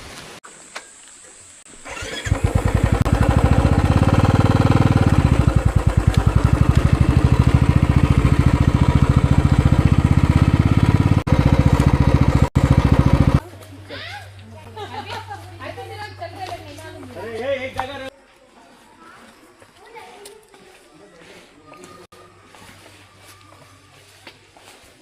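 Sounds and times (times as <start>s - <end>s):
motorcycle engine running: 1.8s - 13.6s.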